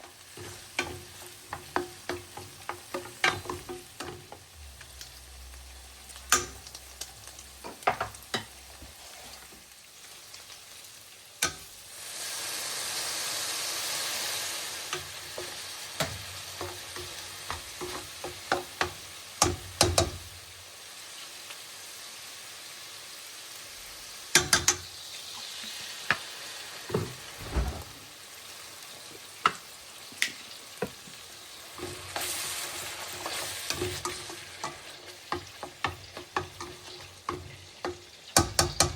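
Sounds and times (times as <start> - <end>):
food sizzling in a pan: 0.0 - 38.9
utensil knocking against pan: 17.8 - 20.2.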